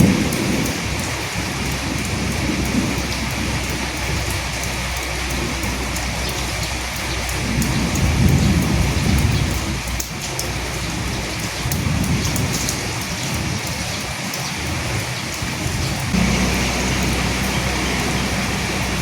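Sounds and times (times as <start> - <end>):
steady rain: 0.0 - 19.0
low rumbling: 16.1 - 19.0
steady low hum: 16.2 - 19.0.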